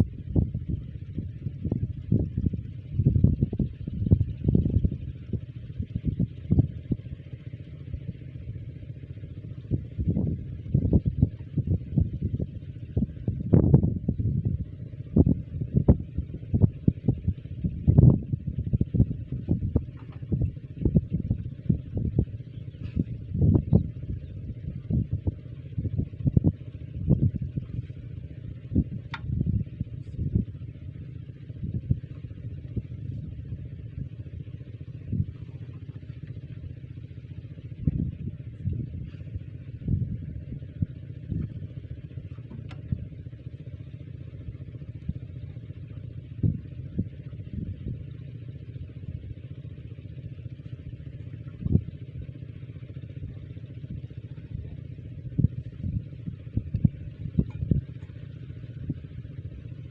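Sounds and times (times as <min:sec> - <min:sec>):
small diesel engine running: 0:00.0 - 0:59.9
engine thumps: 0:18.8 - 0:24.0, 0:24.8 - 0:30.6, 0:37.6 - 0:43.4, 0:55.3 - 0:59.1.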